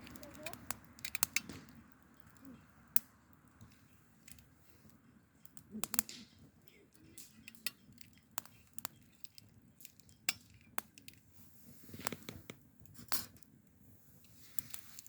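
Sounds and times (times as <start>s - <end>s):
sharp clicks: 0.0s - 2.4s.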